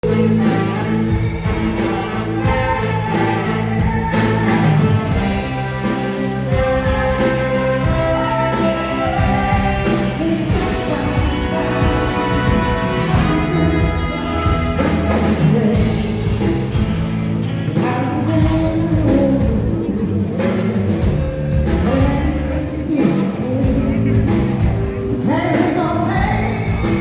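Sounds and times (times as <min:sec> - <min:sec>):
person singing: 0:00.0 - 0:16.7
drum beat: 0:00.0 - 0:17.2
soul band playing live: 0:00.0 - 0:27.0.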